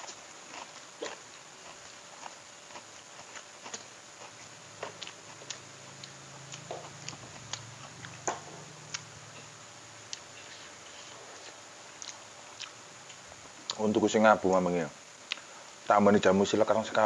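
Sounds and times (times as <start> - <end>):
wet chewing smacks: 10.1 - 13.8.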